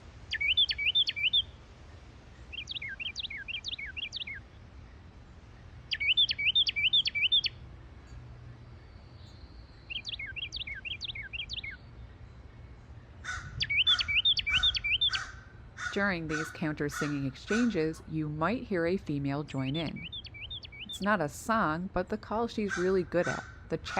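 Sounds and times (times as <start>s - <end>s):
wren singing: 0.3s - 1.6s, 2.5s - 5.1s, 5.8s - 8.2s, 8.8s - 12.3s, 13.0s - 23.9s
crow cawing: 13.2s - 17.8s, 22.7s - 23.7s.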